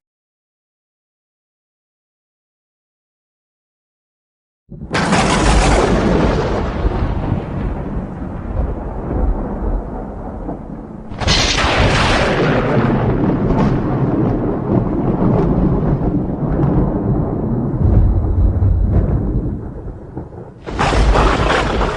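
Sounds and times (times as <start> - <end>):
sharp thunderclap: 4.7 - 21.9
thunder rumbling: 4.7 - 21.9.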